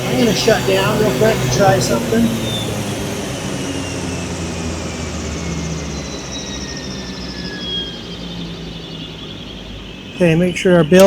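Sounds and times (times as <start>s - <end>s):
low hum: 0.0s - 11.0s
turbine engine whine spooling down: 0.0s - 11.0s.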